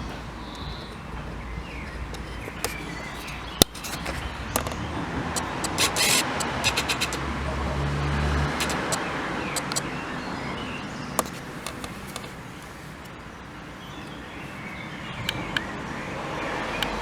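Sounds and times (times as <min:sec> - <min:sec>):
sharp clicks: 0:01.8 - 0:07.4, 0:08.3 - 0:10.0, 0:11.2 - 0:12.4.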